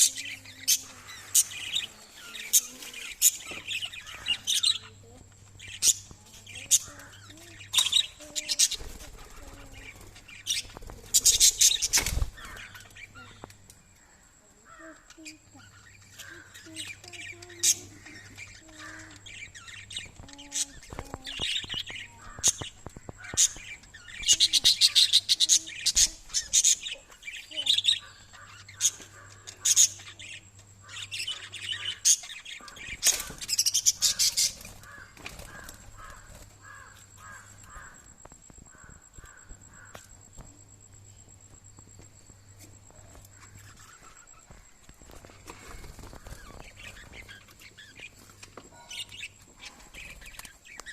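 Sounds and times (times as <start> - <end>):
parrots chirping: 0.0 - 13.5, 15.1 - 38.0.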